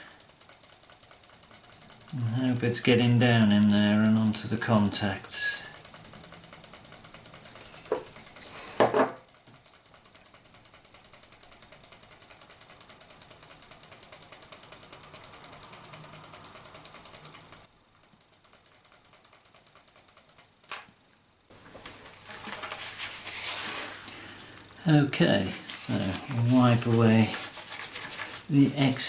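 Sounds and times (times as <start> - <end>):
rubbing sound: 22.1 - 24.1, 25.4 - 28.7.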